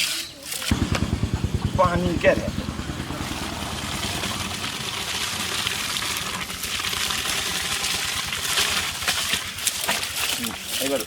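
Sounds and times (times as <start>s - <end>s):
water running and splashing: 3.0s - 11.0s.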